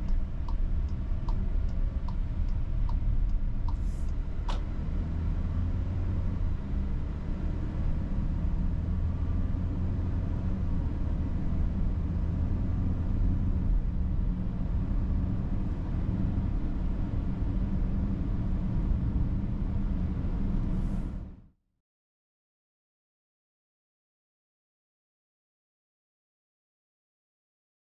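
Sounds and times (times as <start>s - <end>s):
car engine and road noise: 0.0s - 21.5s.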